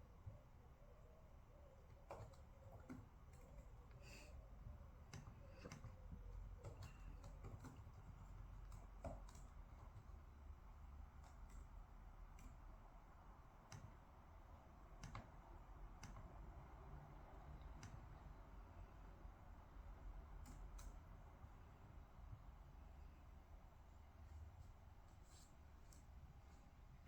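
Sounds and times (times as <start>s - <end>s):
low room hum: 0.0s - 27.0s
desk work clicks and taps: 1.9s - 3.6s, 5.0s - 10.3s, 13.6s - 14.1s, 14.8s - 16.6s, 17.6s - 18.2s.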